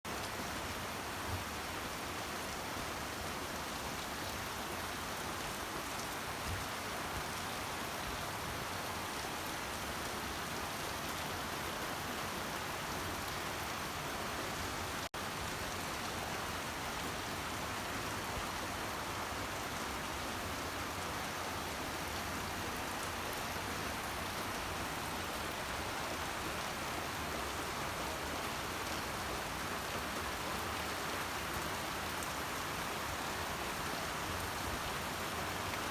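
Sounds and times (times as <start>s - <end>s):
heavy rain: 0.1s - 35.9s.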